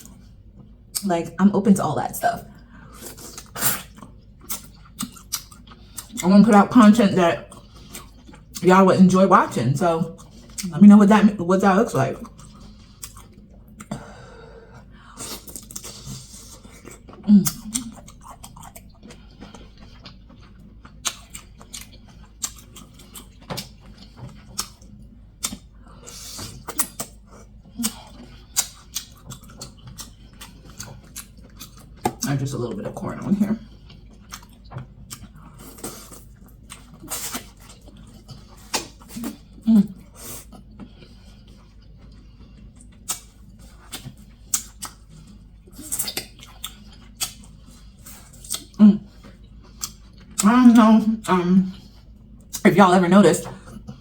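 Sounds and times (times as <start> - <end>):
mouth chewing with lip smacks: 2.5 - 6.3, 7.4 - 8.6, 10.1 - 10.7, 12.2 - 14.1, 14.7 - 32.3, 33.6 - 52.7
sharp eating clicks: 16.8 - 25.7, 26.3 - 32.3, 41.7 - 45.0
wet mouth smacks: 38.7 - 39.0.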